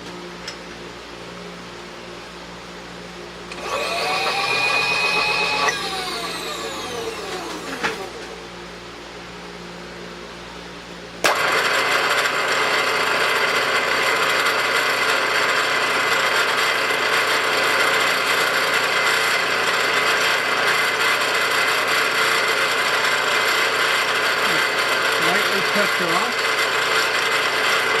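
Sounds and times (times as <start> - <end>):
lathe spindle gear rattle and whine: 3.5 - 8.4, 11.2 - 28.0.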